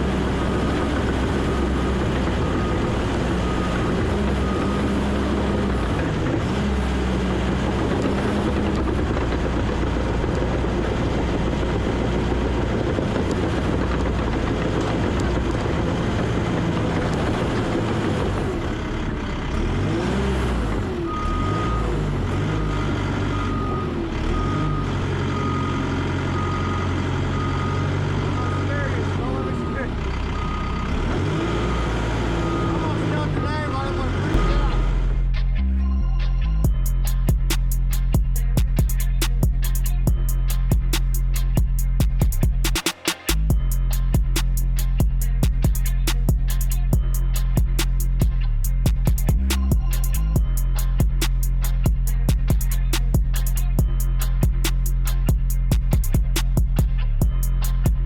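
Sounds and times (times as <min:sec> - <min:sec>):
diesel engine working under load: 0:00.0 - 0:58.0
reversing alarm beeping: 0:01.0 - 0:06.1, 0:21.0 - 0:35.2.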